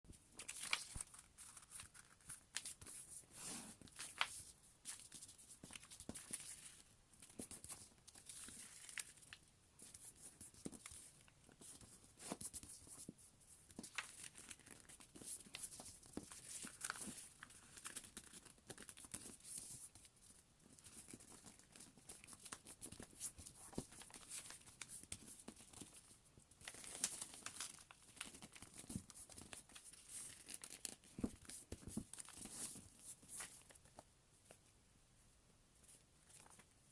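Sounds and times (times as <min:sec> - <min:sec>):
paper rustling and crinkling: 0:00.3 - 0:06.8, 0:13.7 - 0:20.1, 0:20.8 - 0:34.0, 0:36.2 - 0:36.7
paper fold crackles: 0:00.4 - 0:02.9, 0:26.6 - 0:34.0.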